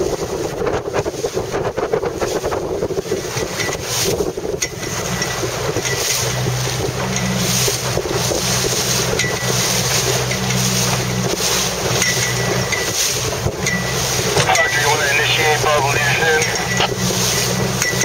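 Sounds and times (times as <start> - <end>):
rushing water: 14.0 - 17.8.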